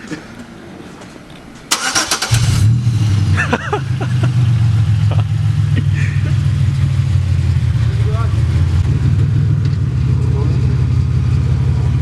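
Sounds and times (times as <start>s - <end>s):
car engine idling: 0.8s - 12.0s
car starter cranking: 1.6s - 3.2s.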